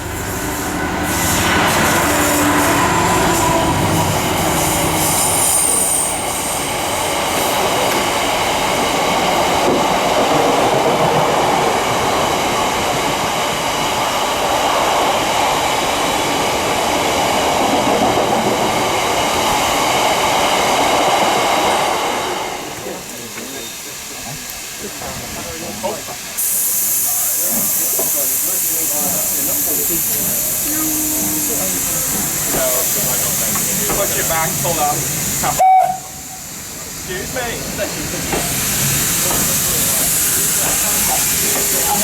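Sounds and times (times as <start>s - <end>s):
diesel locomotive engine: 0.0s - 42.0s
wheel squeal: 5.1s - 6.7s.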